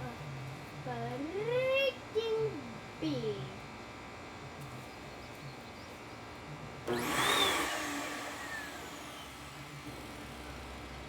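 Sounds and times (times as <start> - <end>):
vacuum cleaner motor whine: 6.8 - 11.0.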